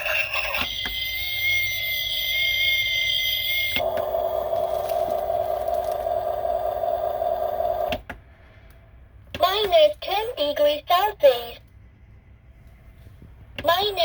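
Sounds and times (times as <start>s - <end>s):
low buzzing hum: 0.0s - 8.0s.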